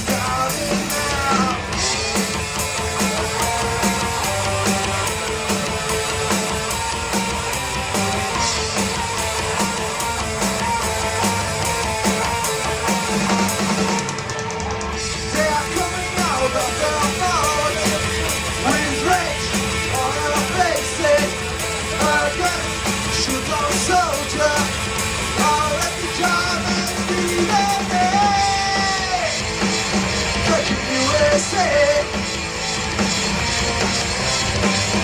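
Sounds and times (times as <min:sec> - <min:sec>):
person singing: 0:00.0 - 0:02.0, 0:15.2 - 0:29.4, 0:30.4 - 0:32.1
rock band playing live: 0:00.0 - 0:35.0.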